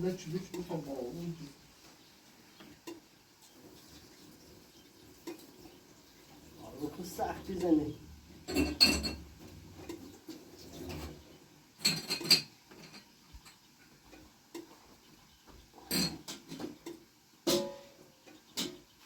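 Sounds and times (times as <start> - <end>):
kitchenware clinking: 7.4 - 10.1, 11.8 - 14.8, 15.8 - 18.8.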